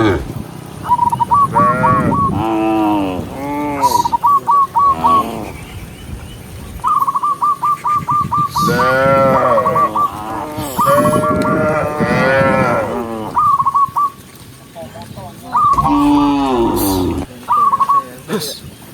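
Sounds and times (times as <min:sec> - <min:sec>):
cattle mooing: 0:01.5 - 0:04.1, 0:08.6 - 0:13.4, 0:15.7 - 0:17.3.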